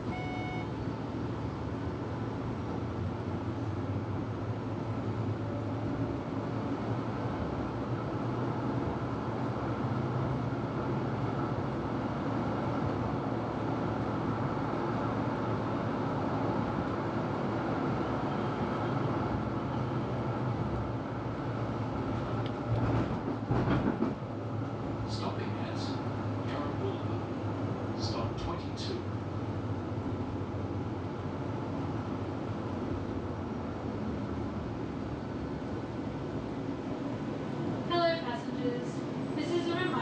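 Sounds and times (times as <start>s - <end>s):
tram wheels rumbling on rails: 0.8s - 40.0s
knocks and rattles: 22.8s - 24.2s.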